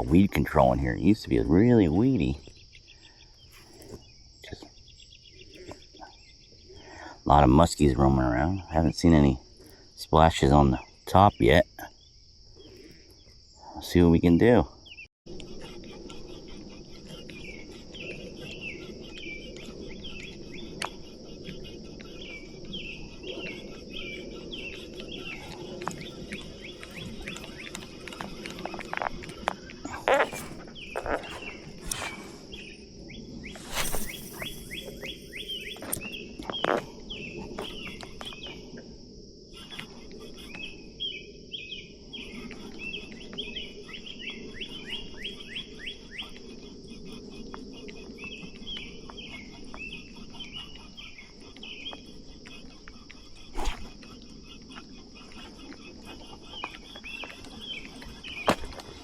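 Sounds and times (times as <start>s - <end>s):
birds chirping: 0.0s - 59.0s
high-pitched insect drone: 32.4s - 59.0s.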